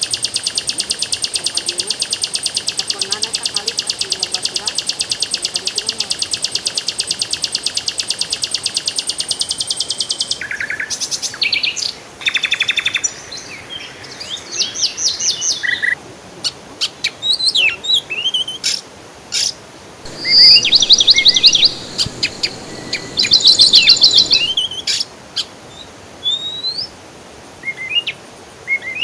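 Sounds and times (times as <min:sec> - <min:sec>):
bird trilling: 0:10.0 - 0:16.0, 0:20.1 - 0:25.0
birds chirping and whistling: 0:10.4 - 0:16.0, 0:20.1 - 0:25.0.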